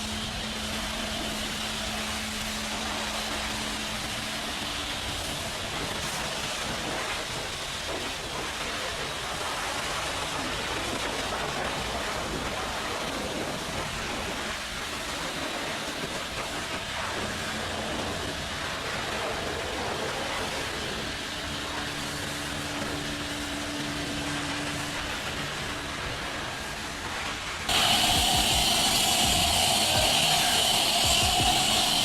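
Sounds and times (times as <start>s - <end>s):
pressure washer spraying: 14.9s - 32.0s.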